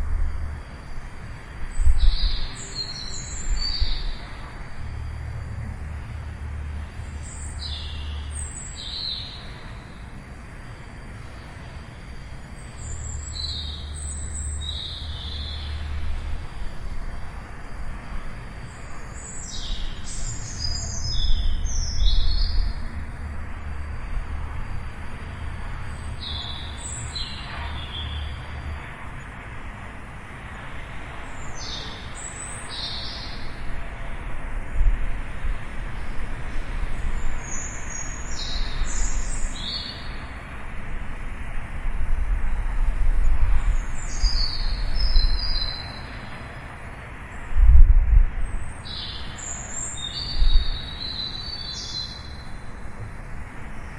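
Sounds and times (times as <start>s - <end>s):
small birds chirping: 1.7s - 4.5s, 7.0s - 10.1s, 12.4s - 16.3s, 18.6s - 23.1s, 25.9s - 28.4s, 36.9s - 40.3s.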